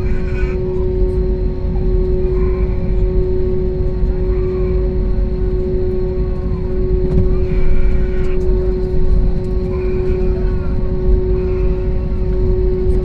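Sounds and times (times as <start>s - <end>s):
aircraft cabin engine hum: 0.0s - 13.0s
faint voices: 0.0s - 13.0s
low rumble: 0.0s - 13.0s.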